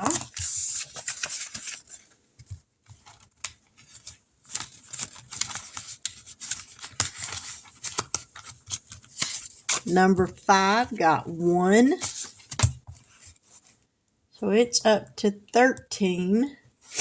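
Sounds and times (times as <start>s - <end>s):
paper money rustling: 0.0s - 10.8s.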